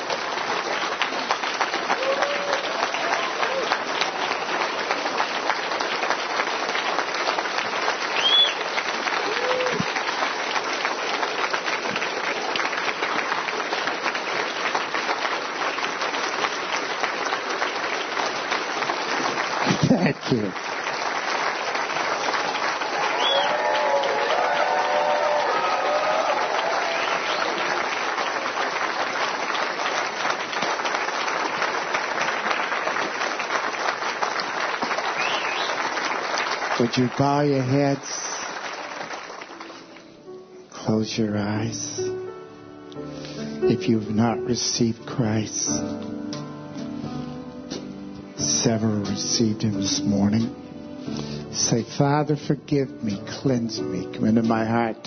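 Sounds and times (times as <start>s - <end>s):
crowd applauding: 0.0s - 42.3s, 48.4s - 50.5s, 51.1s - 55.0s.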